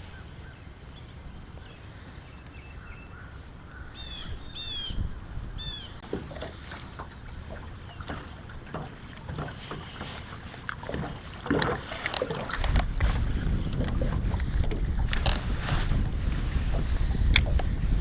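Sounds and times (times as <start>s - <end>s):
wind buffeting microphone: 0.0s - 18.0s
small clicks and knocks: 13.8s - 15.4s.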